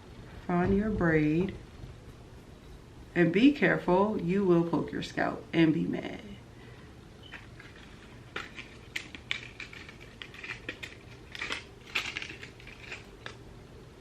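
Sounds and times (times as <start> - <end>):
scratchy hair rustles: 7.2 - 13.4.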